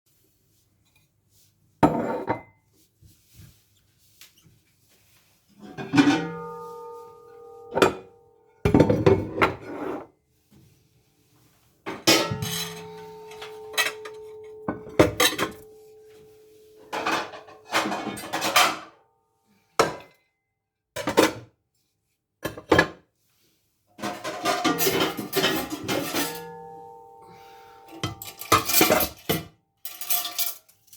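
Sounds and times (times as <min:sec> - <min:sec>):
metal pot ringing: 0:05.6 - 0:09.6, 0:11.9 - 0:19.0, 0:24.4 - 0:29.3
dishes and cutlery clattering: 0:05.6 - 0:10.1, 0:11.9 - 0:19.0, 0:24.0 - 0:30.9.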